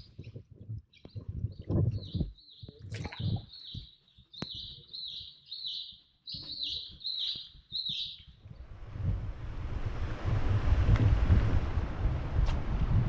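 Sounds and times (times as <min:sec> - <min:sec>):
bird chirping: 0:00.0 - 0:08.4.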